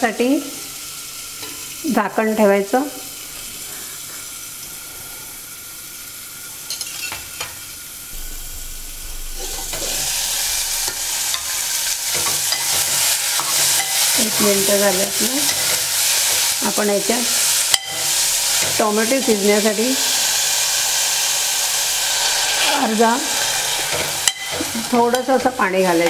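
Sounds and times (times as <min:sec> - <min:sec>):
vegetables sizzling in hot oil: 0:00.0 - 0:26.0
spoon scraping in a pot: 0:09.4 - 0:14.5.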